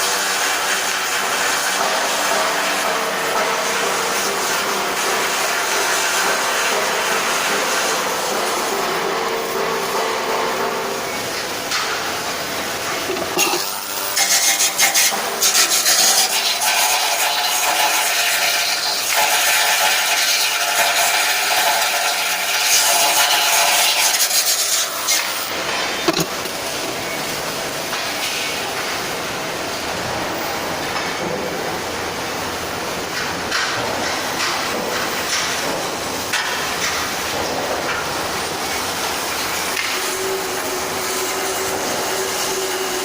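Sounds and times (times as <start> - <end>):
rasping on stainless steel: 12.9 - 16.0.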